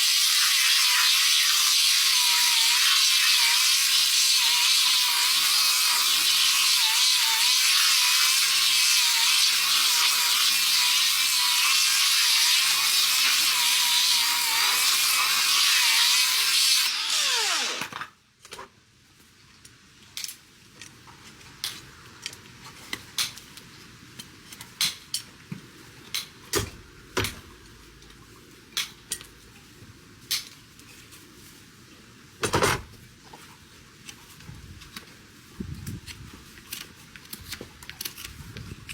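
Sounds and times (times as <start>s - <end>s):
power tool running: 0.9s - 18.1s.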